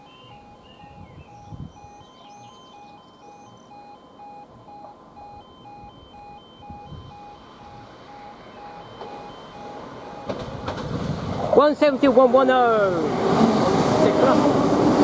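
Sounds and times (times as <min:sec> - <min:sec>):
electronic warning alarm beeping: 0:00.0 - 0:10.8
higher alternating tones: 0:00.0 - 0:10.8
train rumble: 0:06.1 - 0:15.0.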